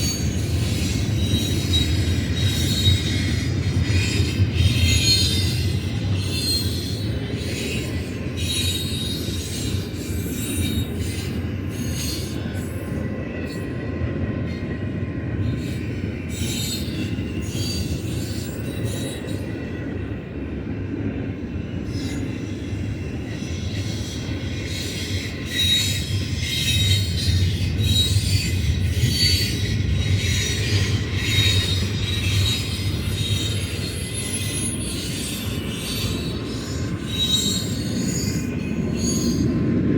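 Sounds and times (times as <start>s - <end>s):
high-pitched wheel squeal: 0.0s - 13.0s, 23.2s - 39.6s
freight train cars rumbling: 0.0s - 39.9s.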